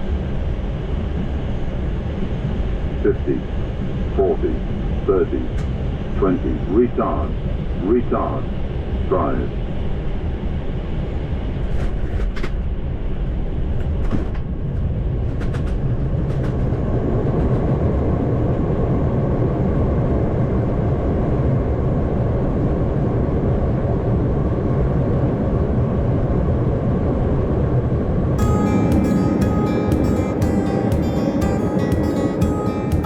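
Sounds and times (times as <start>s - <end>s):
aircraft engine noise: 0.0s - 33.0s
wheels rumbling on runway: 11.2s - 28.4s.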